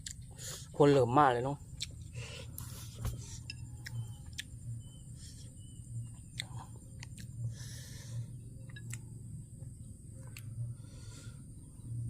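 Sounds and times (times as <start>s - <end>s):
person chewing: 0.0s - 0.6s, 1.7s - 4.6s, 6.0s - 8.0s, 8.6s - 9.1s
steady low hum: 0.0s - 12.0s.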